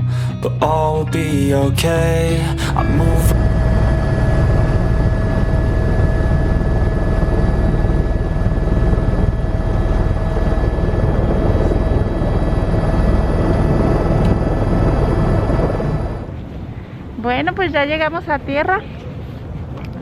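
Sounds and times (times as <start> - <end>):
turbine whine: 0.0 - 17.2
helicopter rotor chop: 2.7 - 16.4.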